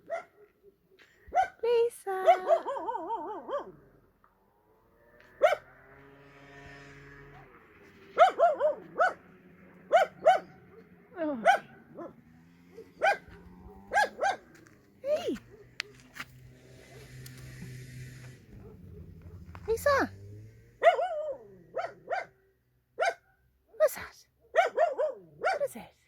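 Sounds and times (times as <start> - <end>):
puppy yapping: 5.4 - 5.7, 8.1 - 9.3, 9.9 - 14.6, 20.8 - 22.3.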